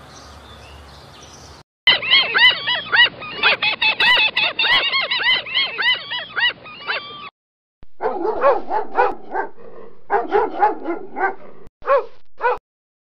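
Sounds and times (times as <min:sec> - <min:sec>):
dog whimpering and yipping: 0:01.9 - 0:07.3.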